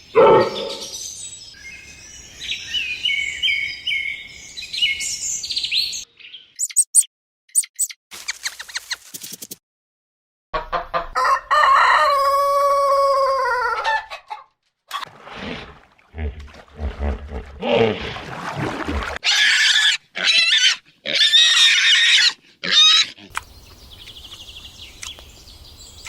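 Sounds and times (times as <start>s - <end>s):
low animal grunting: 0.2s - 1.0s, 15.2s - 18.3s
rooster crowing: 11.1s - 14.1s
shrill animal squeals: 19.2s - 23.2s.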